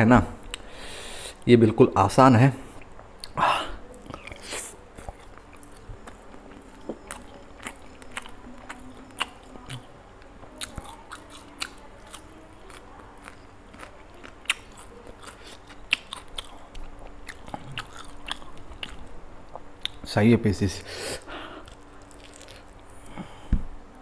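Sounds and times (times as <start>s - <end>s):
chewing with mouth clicks: 2.8s - 20.0s, 21.6s - 23.2s
food crunches: 4.0s - 9.9s, 10.6s - 20.0s, 21.6s - 22.9s.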